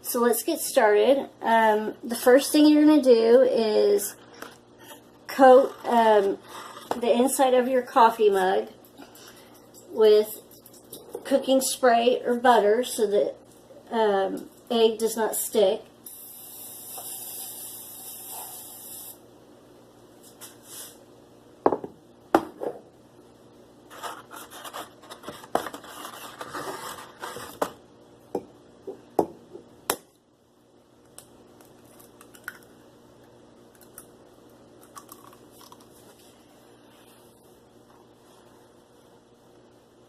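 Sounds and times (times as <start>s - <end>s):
aerosol spray hissing: 16.1s - 19.2s.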